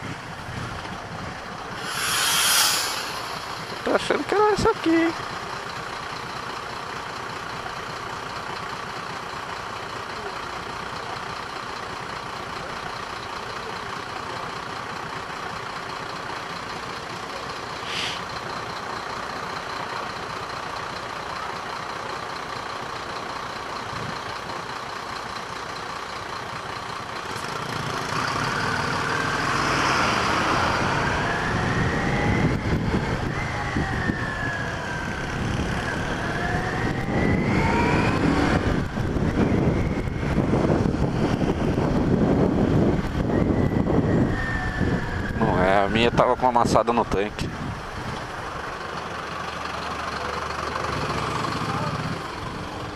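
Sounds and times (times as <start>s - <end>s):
wind and road noise: 0.0s - 6.4s, 26.2s - 49.4s, 50.9s - 52.9s
tone sweeping up and down: 1.8s - 4.4s.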